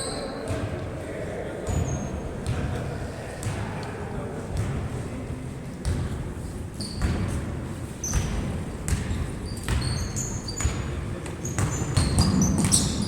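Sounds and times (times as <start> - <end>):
basketball bouncing on court floor: 4.5 - 4.8, 5.8 - 13.0.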